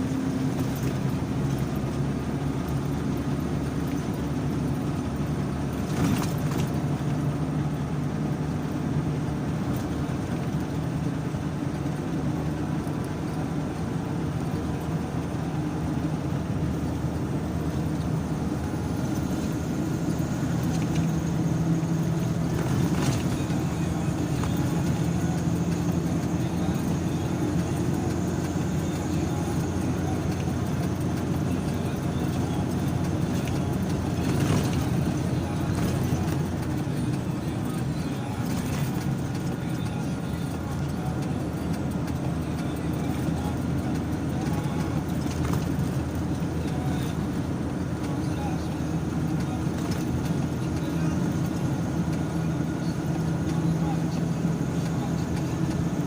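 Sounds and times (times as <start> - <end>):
car engine and tyre drone: 0.0 - 56.0.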